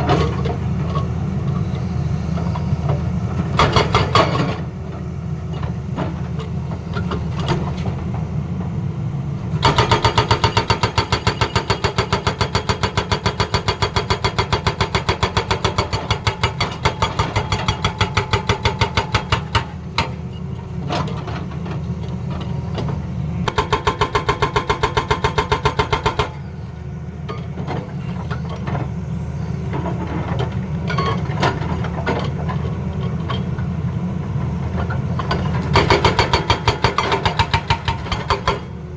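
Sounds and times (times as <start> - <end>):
diesel engine running: 0.0 - 38.9
hydraulic breaker hammering: 9.6 - 20.2, 23.5 - 26.4, 35.4 - 38.8.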